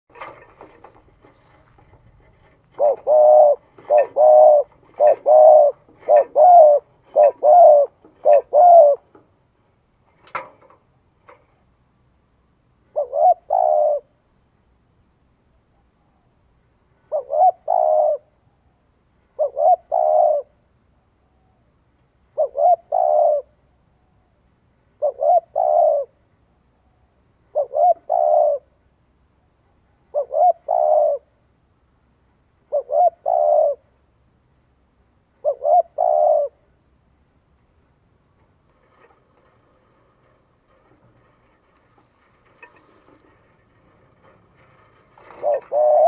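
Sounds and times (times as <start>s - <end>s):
bird cooing: 1.4s - 9.1s, 12.9s - 14.2s, 17.0s - 18.7s, 19.4s - 21.6s, 22.3s - 24.2s, 25.0s - 26.2s, 27.4s - 28.8s, 29.7s - 31.4s, 32.6s - 34.0s, 35.4s - 36.8s, 45.2s - 46.0s.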